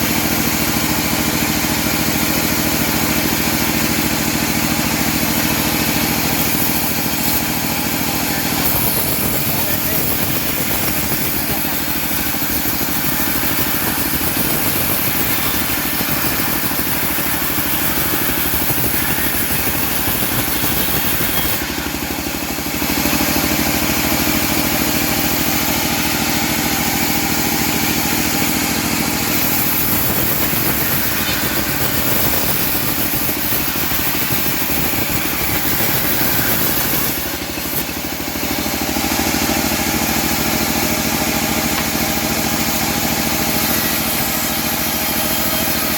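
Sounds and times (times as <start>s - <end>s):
sawmill engine sawing log: 0.0s - 45.9s.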